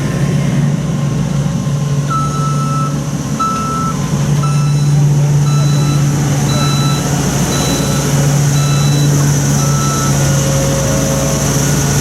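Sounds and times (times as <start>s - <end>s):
vehicle engine running: 0.0s - 12.0s
reversing alarm beeping: 2.1s - 11.0s.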